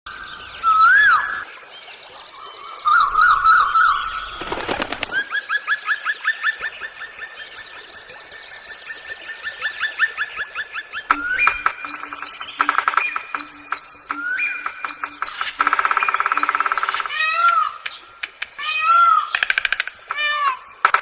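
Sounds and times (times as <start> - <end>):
bird warbling: 10.9 - 19.8
repeated rising chirps: 11.1 - 17.4
bird whistle: 11.1 - 17.8
rapid clicks: 11.4 - 17.1.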